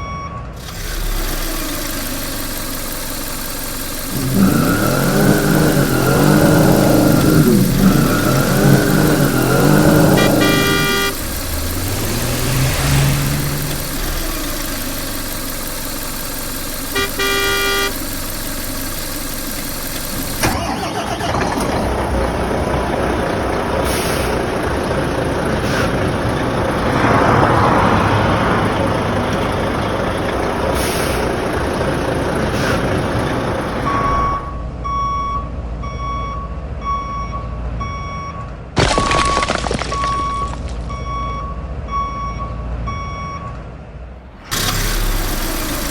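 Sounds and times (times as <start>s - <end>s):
reversing alarm beeping: 0.0s - 21.2s, 23.8s - 38.5s, 39.9s - 43.6s
heavy vehicle engine: 0.0s - 45.9s
horn honk: 4.2s - 15.0s, 16.5s - 18.8s.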